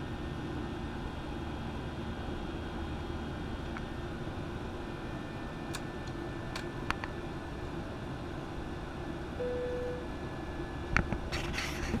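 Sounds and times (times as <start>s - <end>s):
short steady tone: 9.4s - 10.1s.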